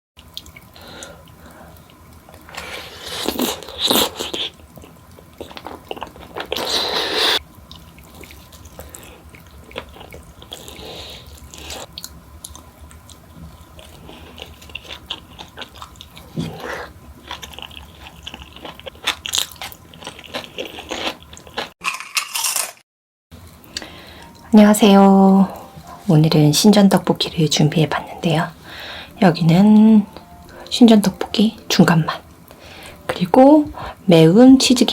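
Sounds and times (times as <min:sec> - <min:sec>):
crunchy food chewing: 0:01.3 - 0:22.8.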